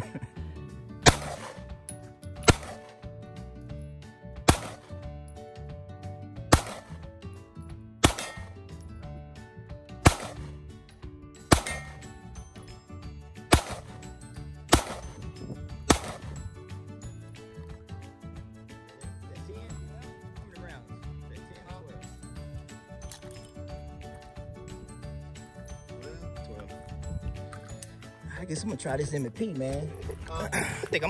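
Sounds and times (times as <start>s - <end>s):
faint background music: 0.0s - 31.0s
pistol shots: 1.0s - 1.7s, 2.4s - 3.0s, 4.5s - 4.9s, 6.5s - 7.0s, 8.0s - 8.6s, 10.0s - 10.6s, 11.4s - 12.2s, 13.5s - 14.0s, 14.7s - 15.2s, 15.8s - 16.4s.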